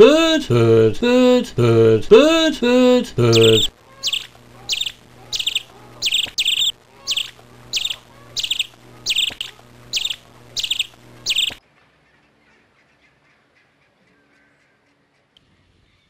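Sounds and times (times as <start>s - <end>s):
low steady hum: 0.0s - 11.9s
bird chirping: 3.3s - 15.2s.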